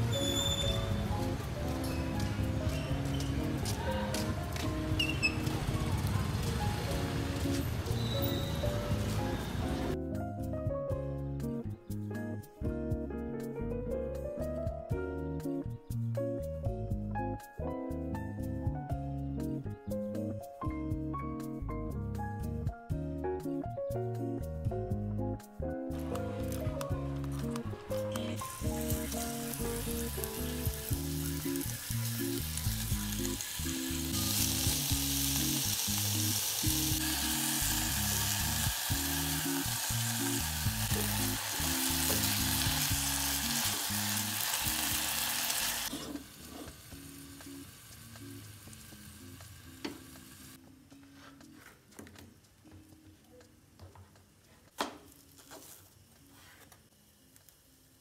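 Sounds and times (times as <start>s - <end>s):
soft background music: 0.0s - 58.0s
fish sizzling in a pot: 28.3s - 50.6s.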